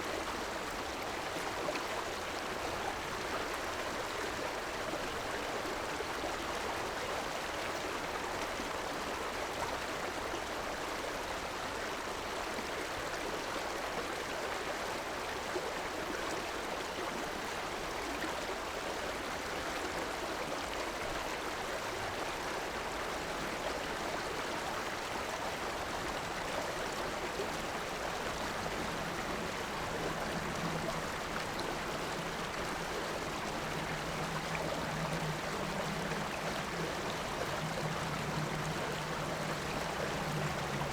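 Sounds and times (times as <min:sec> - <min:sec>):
river water rushing: 0:21.0 - 0:40.9
low steady hum: 0:27.3 - 0:40.9.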